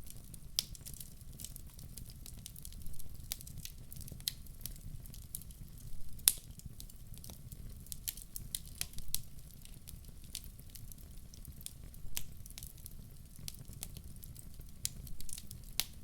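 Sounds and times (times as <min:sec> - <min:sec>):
wood fire crackling: 0:00.0 - 0:16.0
sharp pops of fire: 0:06.2 - 0:06.6.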